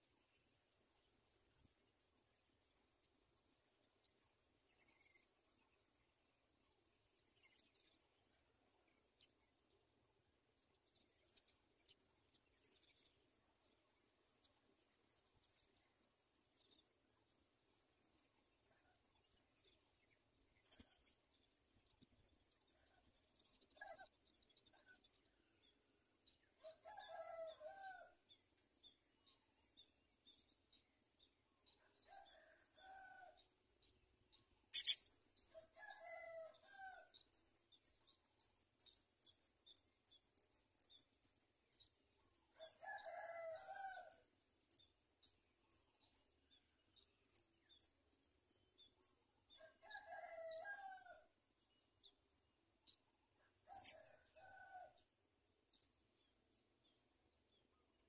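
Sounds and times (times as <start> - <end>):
high thin bird chirps: 34.7 - 35.6.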